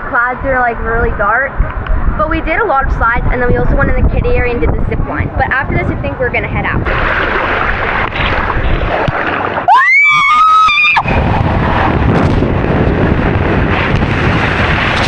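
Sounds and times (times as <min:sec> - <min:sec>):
wind buffeting microphone: 0:00.0 - 0:15.0
rushing water: 0:06.8 - 0:15.0
person screaming: 0:09.7 - 0:11.1.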